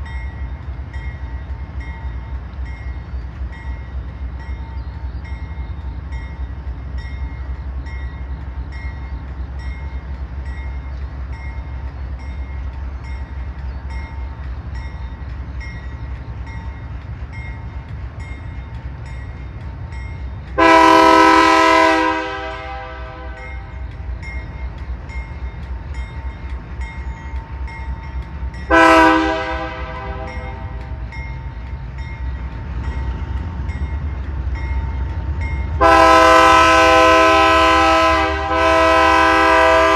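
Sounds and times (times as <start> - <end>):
train rumbling past: 0.0 - 39.9
locomotive horn blasts: 20.6 - 23.7, 28.7 - 30.9, 35.8 - 39.9.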